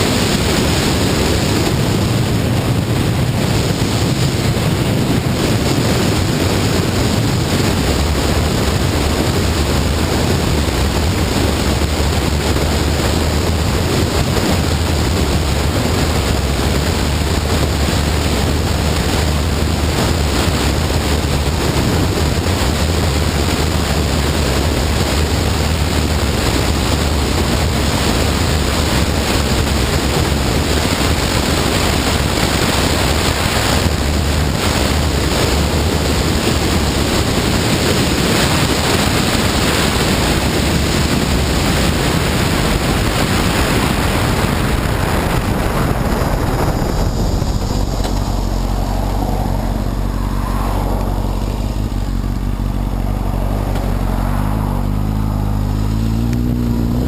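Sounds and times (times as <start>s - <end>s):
motorcycle engine drone: 0.0s - 57.0s
wind rushing on microphone: 0.0s - 57.0s.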